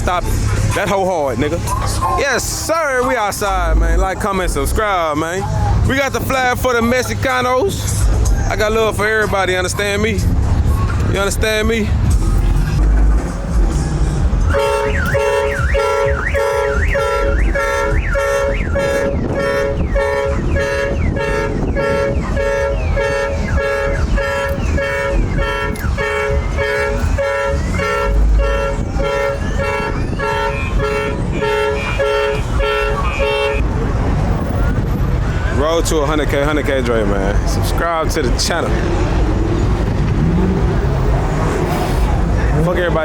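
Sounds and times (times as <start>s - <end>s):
bass: 0.0s - 43.0s
low rumble of engines: 0.0s - 43.0s
two-tone car horn honking: 14.4s - 33.7s.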